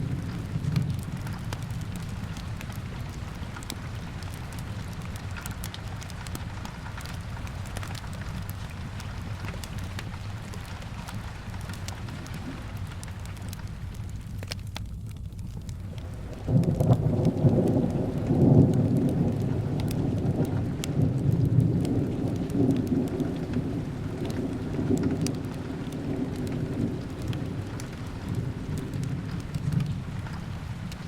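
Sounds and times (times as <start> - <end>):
thunder rumble: 0.0 - 14.0, 15.8 - 31.0
fireplace crackling: 0.0 - 18.2
steady rain: 0.0 - 31.0.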